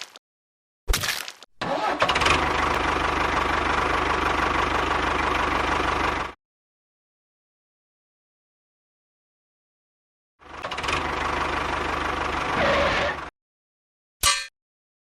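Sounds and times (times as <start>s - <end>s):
small engine running: 1.6s - 6.4s, 10.4s - 13.3s.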